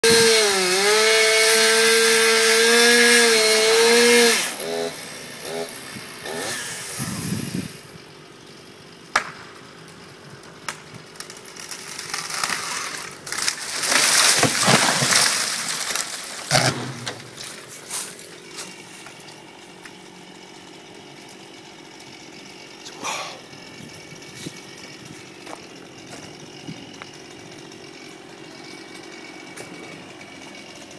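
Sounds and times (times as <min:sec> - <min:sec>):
chainsaw running at high speed: 0:00.0 - 0:09.1, 0:17.9 - 0:30.9
sharp crack: 0:09.1 - 0:09.6, 0:10.6 - 0:17.6.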